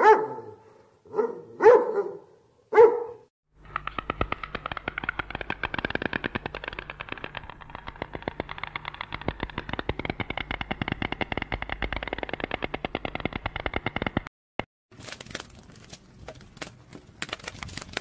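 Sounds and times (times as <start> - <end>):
stork clattering its bill: 3.6 - 14.3.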